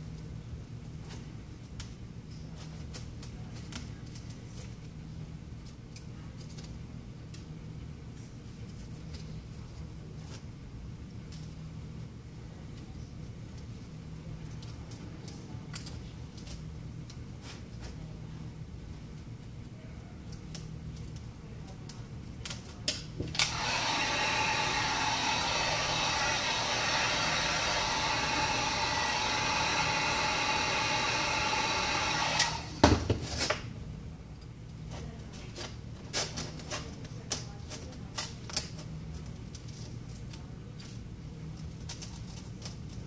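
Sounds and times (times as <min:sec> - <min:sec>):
heat gun fan blowing: 0:20.4 - 0:33.8.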